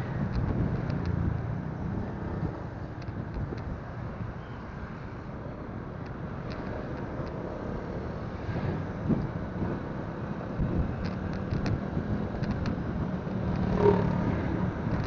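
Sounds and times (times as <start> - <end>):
wind buffeting microphone: 0.0 - 4.4, 8.2 - 15.0.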